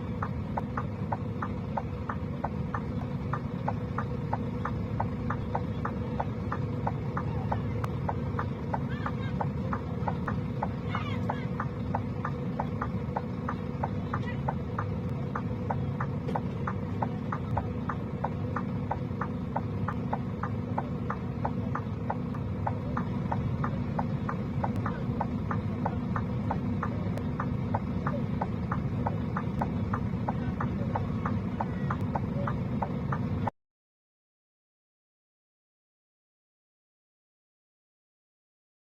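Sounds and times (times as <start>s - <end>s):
engine and road rumble: 0.0s - 33.5s
hazard-light relay ticking: 0.1s - 33.5s.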